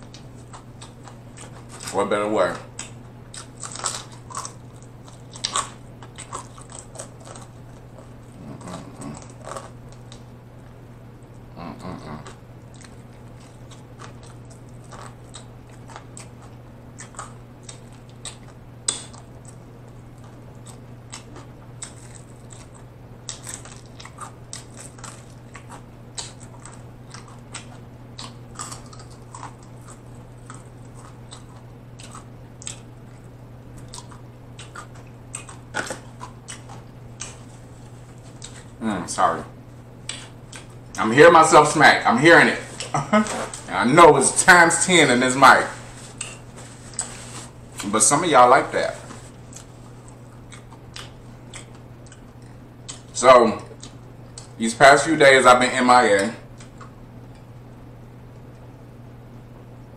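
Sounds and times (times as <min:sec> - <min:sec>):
steady low hum: 0:00.0 - 0:59.9
crunchy bites and lip smacks: 0:02.7 - 0:38.8, 0:40.0 - 0:41.0, 0:49.3 - 0:54.6.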